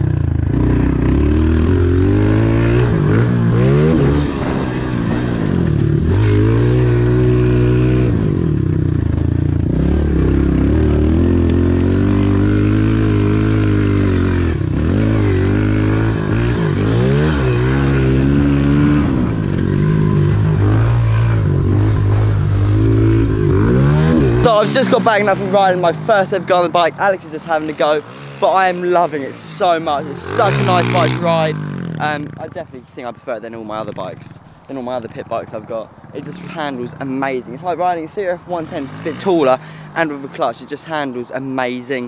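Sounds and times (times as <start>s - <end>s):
motorbike engine revving: 0.0s - 32.6s.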